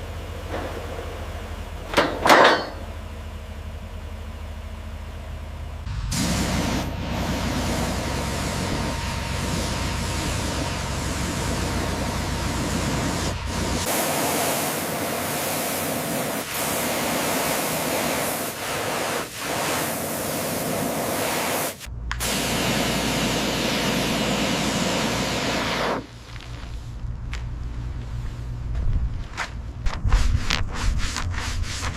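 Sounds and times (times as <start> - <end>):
low machine hum: 0.0 - 17.6, 21.9 - 30.3
pressure washer spray hissing: 5.9 - 26.2.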